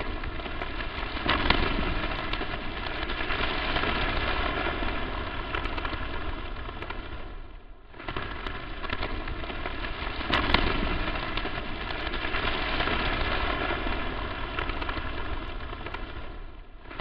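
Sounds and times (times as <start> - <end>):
static hiss with crackles: 0.0 - 17.0.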